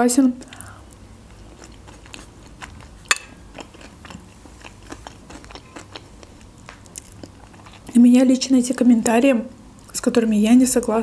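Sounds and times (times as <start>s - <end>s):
person chewing salad: 0.4s - 8.0s.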